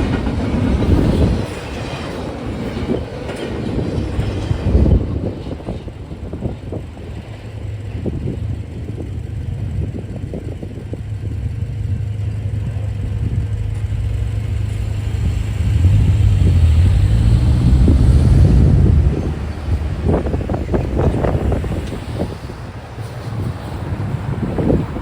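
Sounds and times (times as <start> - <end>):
freight train rumbling: 0.0 - 25.0
wheels clicking over rails: 0.0 - 25.0.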